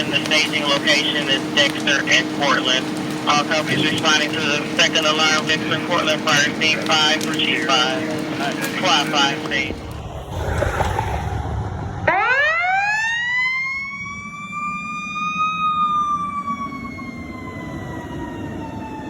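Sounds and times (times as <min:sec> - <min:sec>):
truck rumble: 0:00.0 - 0:12.9
fire engine siren winding: 0:12.1 - 0:19.0.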